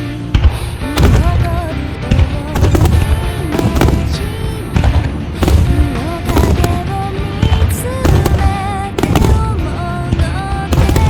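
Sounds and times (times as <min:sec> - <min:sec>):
music playing: 0:00.0 - 0:11.0
fireworks bursting: 0:00.4 - 0:11.0.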